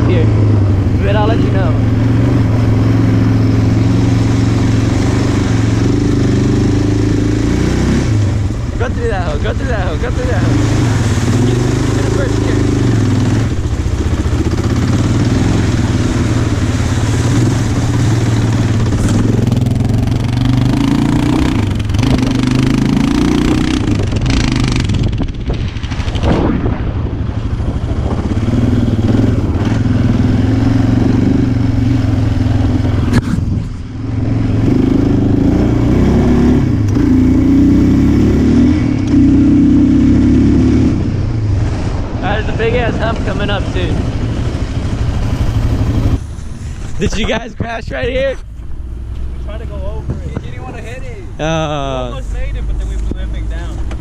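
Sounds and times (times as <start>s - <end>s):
atv engine revving under load: 0.0s - 26.6s, 27.7s - 48.2s.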